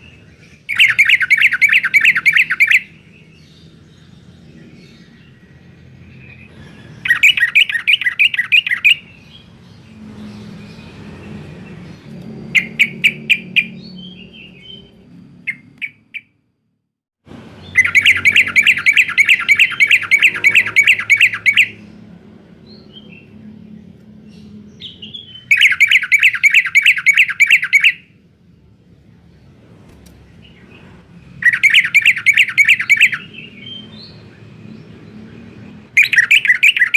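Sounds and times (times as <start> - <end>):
bird singing rattling trills: 0.0 - 16.4, 17.5 - 36.9.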